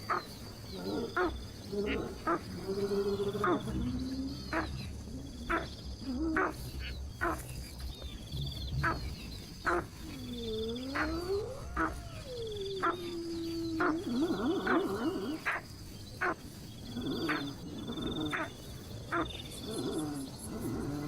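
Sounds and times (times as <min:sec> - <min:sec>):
long low wavering call: 0:09.8 - 0:15.5.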